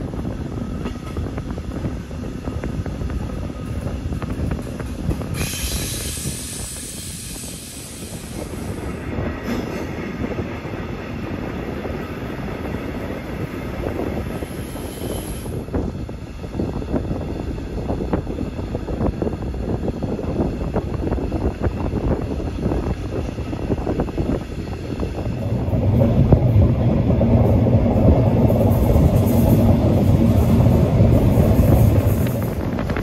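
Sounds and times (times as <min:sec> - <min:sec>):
train wheels rumbling on rails: 0:00.0 - 0:33.0
high hiss: 0:05.4 - 0:09.0.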